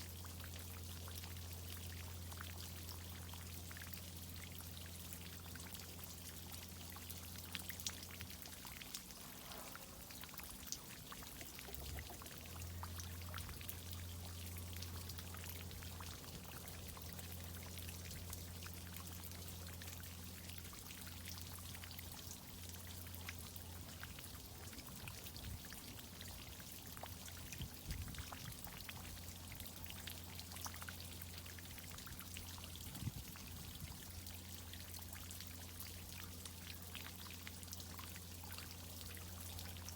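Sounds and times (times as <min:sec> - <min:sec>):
irrigation water pouring and pattering: 0:00.0 - 0:39.9
steady low hum: 0:00.2 - 0:28.4.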